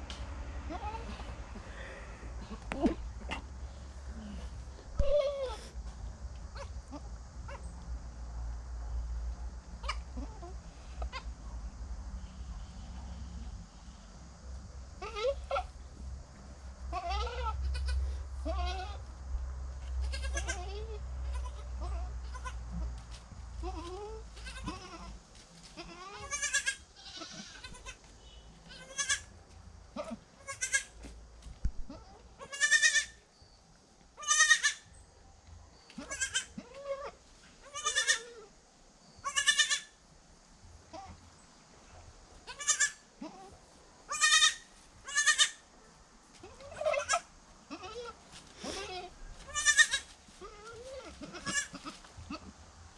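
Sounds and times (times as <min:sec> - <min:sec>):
goats bleating: 0:16.9 - 0:19.0, 0:20.0 - 0:22.6, 0:23.6 - 0:25.1, 0:25.8 - 0:28.0, 0:28.7 - 0:29.3, 0:30.0 - 0:30.9, 0:32.0 - 0:33.2, 0:42.5 - 0:45.6, 0:46.4 - 0:52.5.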